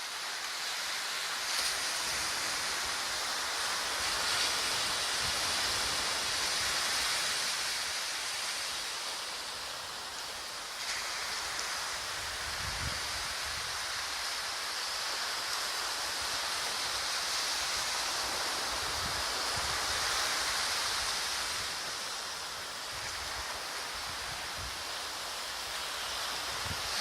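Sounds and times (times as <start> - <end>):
ocean surf: 0.0 - 27.0.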